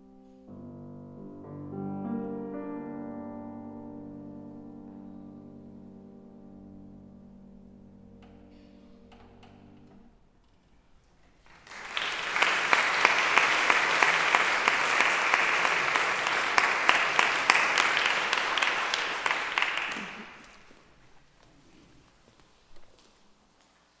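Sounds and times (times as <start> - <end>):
audience applauding: 11.4 - 20.8.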